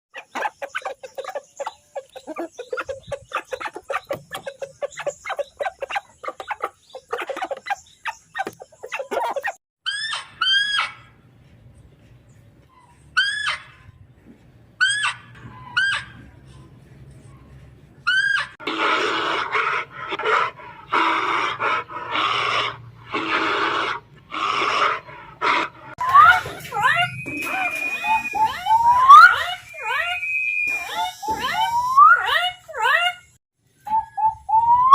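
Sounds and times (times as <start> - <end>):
chickens clucking: 0.1 - 9.6
animal making harsh breathy calls: 18.1 - 26.0.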